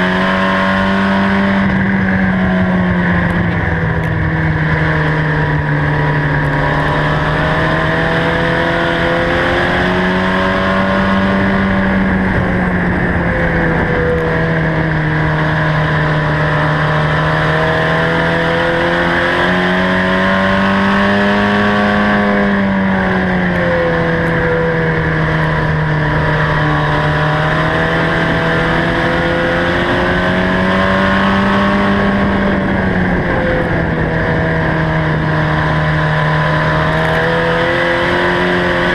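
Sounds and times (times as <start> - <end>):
race truck engines running: 0.0 - 38.9.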